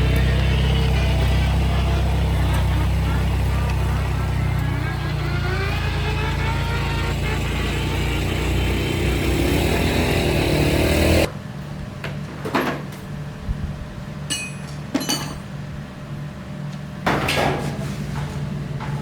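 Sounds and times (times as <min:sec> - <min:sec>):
loud motor running: 0:00.0 - 0:11.3, 0:17.0 - 0:19.0
metal tools clinking: 0:14.3 - 0:15.5.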